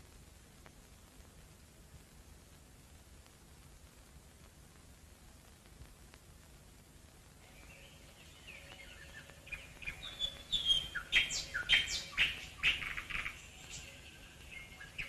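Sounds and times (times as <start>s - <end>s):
birds chirping: 7.4s - 15.0s.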